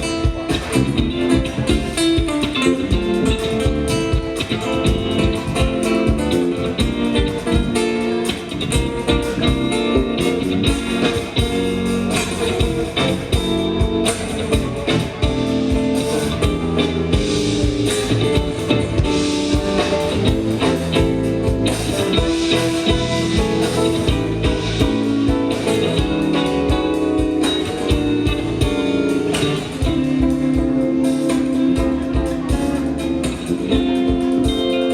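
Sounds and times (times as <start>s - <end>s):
live band playing: 0.0s - 34.9s.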